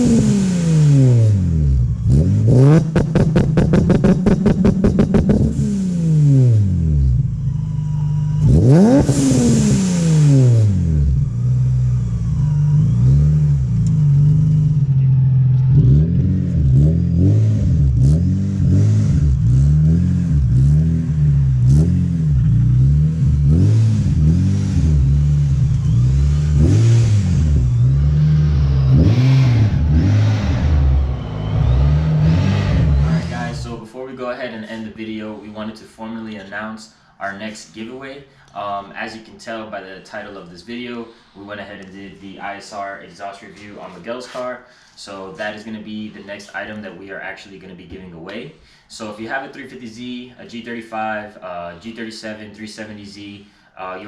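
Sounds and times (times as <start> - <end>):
car engine revving: 0.0 - 33.8.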